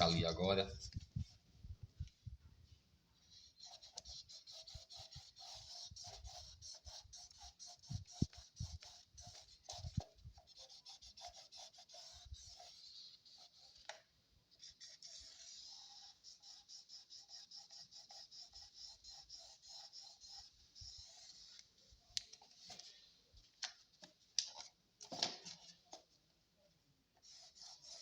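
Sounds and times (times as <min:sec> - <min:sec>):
pen scratching on a panel: 0:03.2 - 0:23.1, 0:27.2 - 0:28.0.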